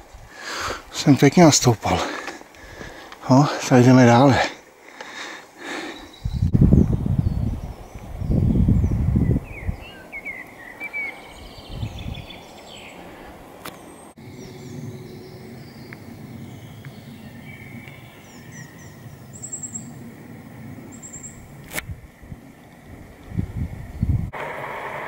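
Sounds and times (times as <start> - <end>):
birds chirping and singing: 5.6 - 21.6
high bird trills: 9.4 - 21.6
faint low outdoor rumble: 9.6 - 25.0.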